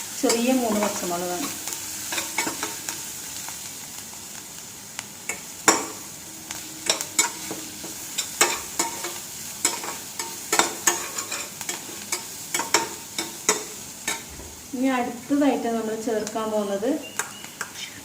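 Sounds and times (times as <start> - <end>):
onions sizzling in oil: 0.0 - 18.0
spatula scraping pan: 6.8 - 14.3.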